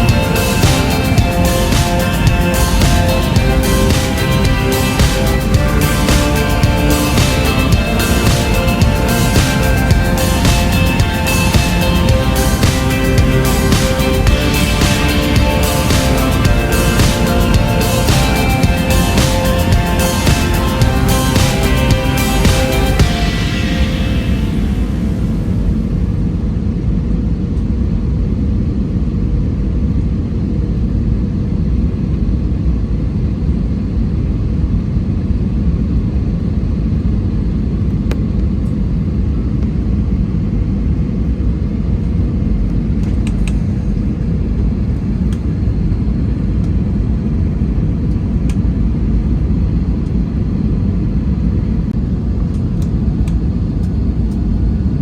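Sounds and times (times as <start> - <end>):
rushing air: 0.0 - 26.8
airliner engines rumbling: 0.0 - 55.0.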